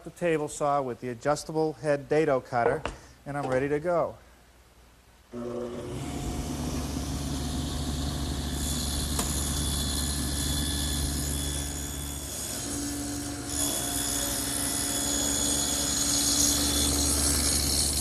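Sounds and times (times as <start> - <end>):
table saw motor hum: 5.4 - 18.0
saw cutting wood hiss: 6.7 - 18.0.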